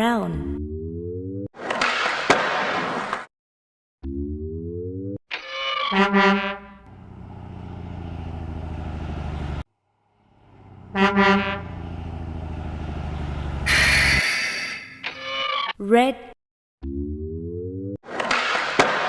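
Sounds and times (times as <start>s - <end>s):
low truck engine running: 6.8s - 14.2s
truck horn toots: 10.6s - 12.4s, 13.4s - 14.8s.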